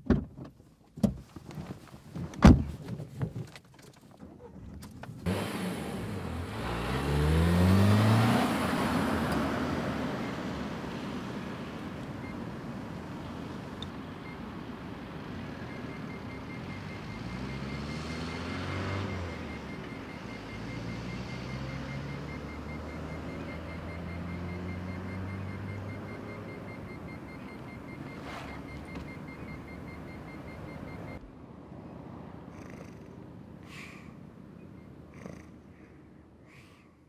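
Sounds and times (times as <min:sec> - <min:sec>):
road traffic: 0:00.8 - 0:37.0
passing vehicle engine drone: 0:05.2 - 0:33.4.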